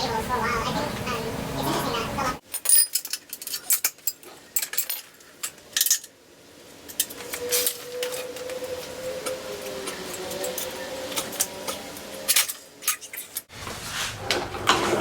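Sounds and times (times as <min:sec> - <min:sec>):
metal tools clinking: 0:02.5 - 0:06.2.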